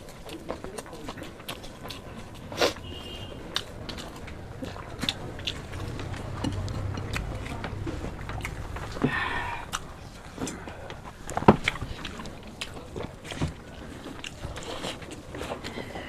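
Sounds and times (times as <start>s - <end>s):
wet mouth clicks: 0.0s - 2.9s, 3.5s - 12.8s
people chewing: 0.0s - 16.0s.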